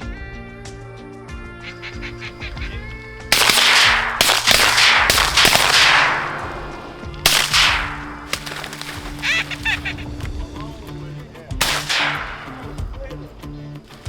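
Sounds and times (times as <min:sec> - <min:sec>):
shotgun blasts echoing: 0:02.1 - 0:10.0, 0:11.6 - 0:13.3.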